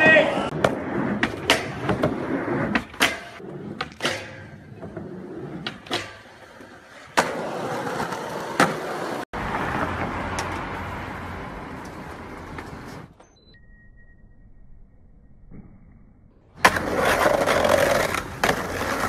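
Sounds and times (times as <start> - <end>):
skateboard wheels rolling on concrete: 0.0 - 13.3, 16.4 - 19.0
skateboard popping and landing: 0.4 - 10.7, 16.5 - 19.0
skateboard grinding on metal rail: 0.6 - 9.2, 16.6 - 19.0.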